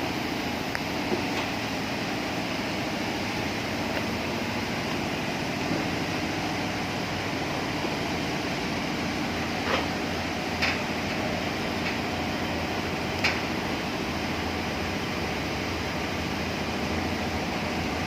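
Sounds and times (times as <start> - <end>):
construction site noise: 0.0 - 18.0.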